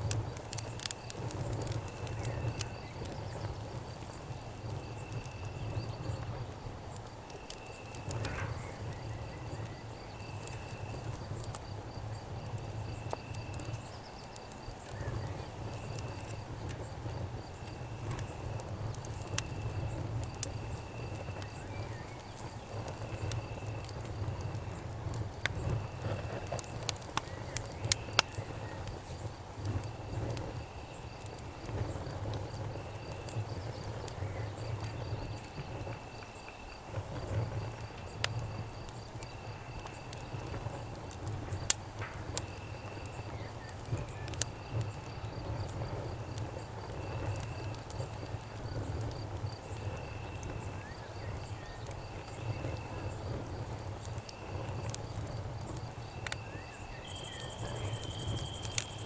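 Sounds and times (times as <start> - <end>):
campfire crackling: 0.0 - 59.0
crickets chirping: 0.0 - 59.0
high insect buzz: 54.0 - 59.0.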